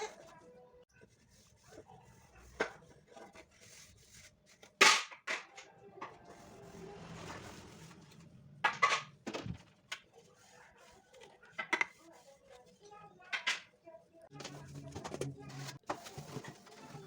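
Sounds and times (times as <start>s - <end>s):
hard objects knocking and clattering: 8.6s - 10.1s.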